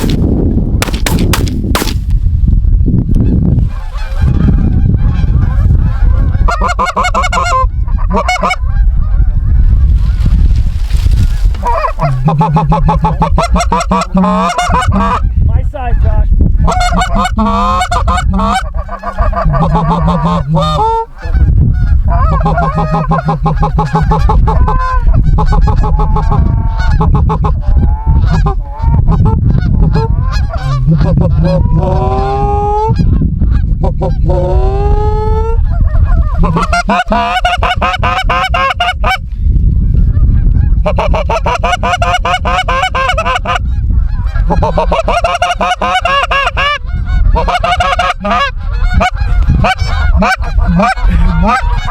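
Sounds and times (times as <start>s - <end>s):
geese honking: 3.7s - 10.2s, 11.4s - 15.3s, 16.6s - 32.2s, 35.7s - 39.2s, 40.7s - 51.9s.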